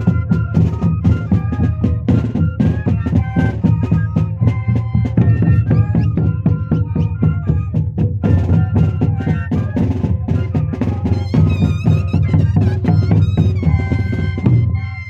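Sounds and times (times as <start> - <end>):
cane flutes playing melody: 0.0 - 15.0
quick drum beat: 8.0 - 14.6.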